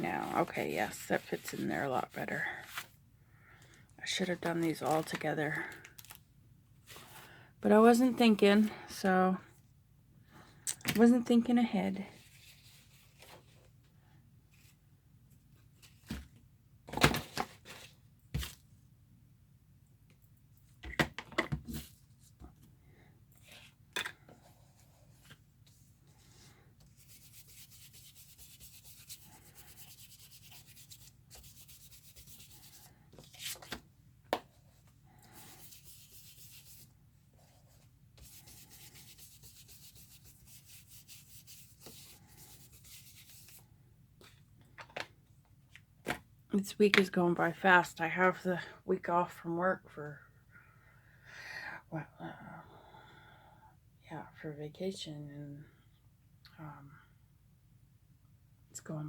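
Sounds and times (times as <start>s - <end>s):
paper rubbing and scuffing: 0.0s - 2.9s, 24.4s - 33.8s, 34.5s - 43.6s.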